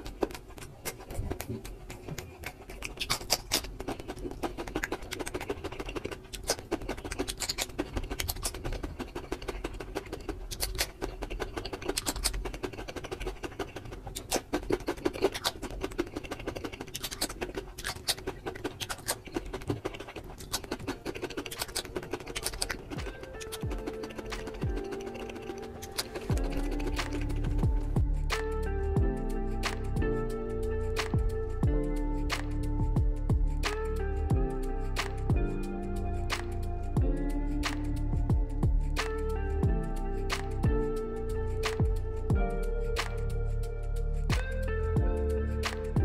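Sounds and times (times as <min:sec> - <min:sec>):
chewing crunchy cucumber: 0:00.0 - 0:28.7.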